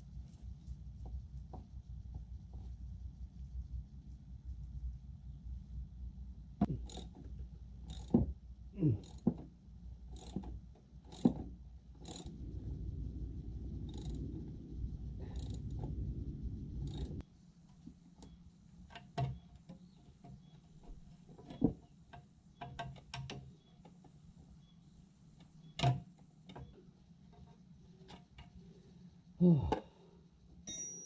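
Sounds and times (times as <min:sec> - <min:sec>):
low rumbling noise: 0:12.0 - 0:17.2.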